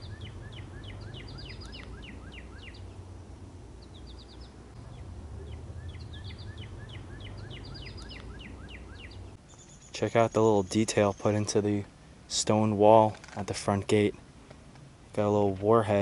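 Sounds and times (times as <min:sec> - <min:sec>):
low background rumble: 0:00.0 - 0:09.8
bird chirping: 0:00.0 - 0:11.7.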